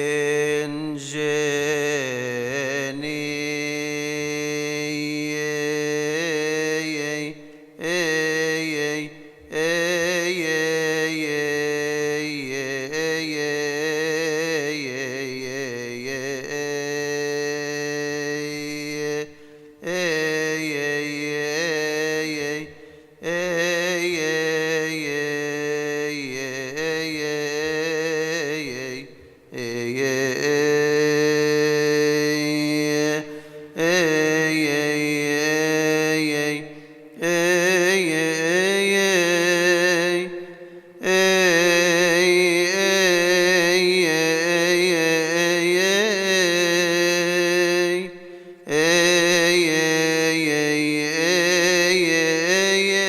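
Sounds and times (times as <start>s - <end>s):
man chanting a hymn: 0.0s - 53.0s
breath: 7.4s - 7.8s, 19.3s - 19.8s, 22.7s - 23.2s, 33.2s - 33.8s, 36.7s - 37.2s, 40.4s - 41.0s, 48.2s - 48.7s.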